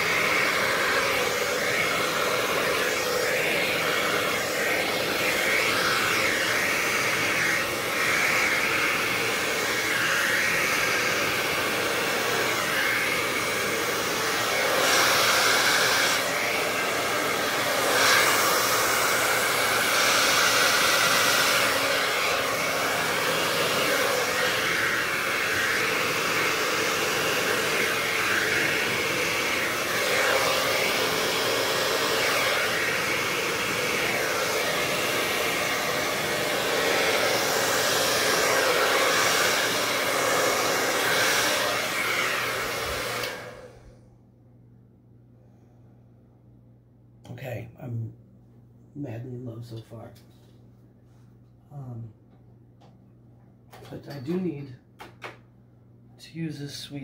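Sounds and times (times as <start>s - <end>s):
hair dryer blowing: 0.0s - 44.0s.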